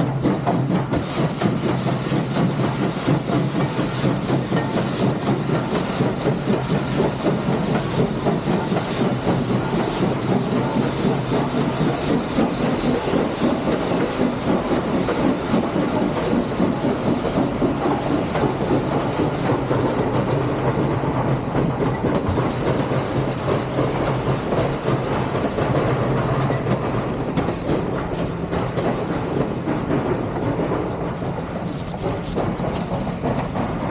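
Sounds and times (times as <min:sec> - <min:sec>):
train wheels clattering over rails: 0:00.0 - 0:33.9.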